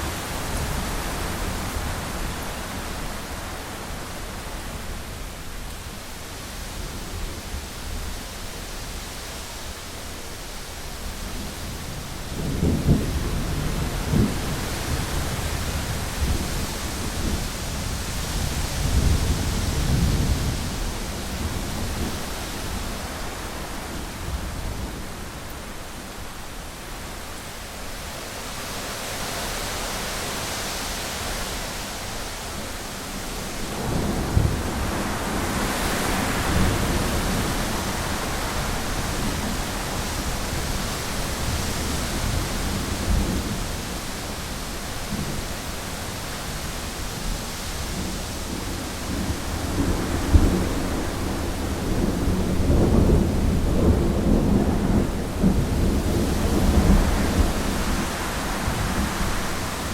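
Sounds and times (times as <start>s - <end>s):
heavy rain on a window: 0.0s - 59.9s
thunder rumbling: 47.9s - 59.9s.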